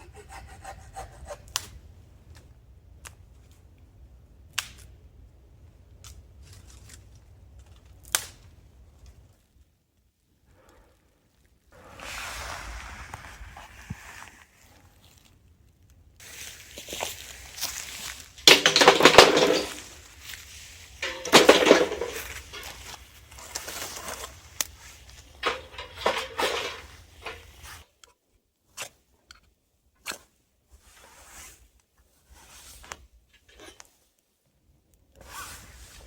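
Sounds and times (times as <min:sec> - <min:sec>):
campfire lighting scrapes and crackles: 0:10.6 - 0:28.0.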